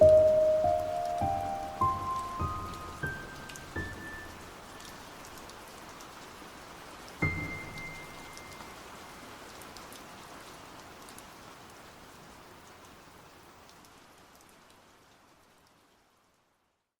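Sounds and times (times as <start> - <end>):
rain drop taps: 0.0 - 6.1
steady rain falling: 0.0 - 17.0.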